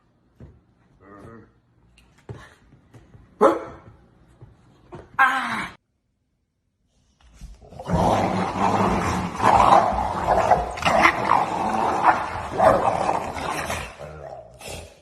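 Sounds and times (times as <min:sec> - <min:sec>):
dog barking: 0:03.4 - 0:03.8
dog growling and snarling: 0:07.6 - 0:15.0.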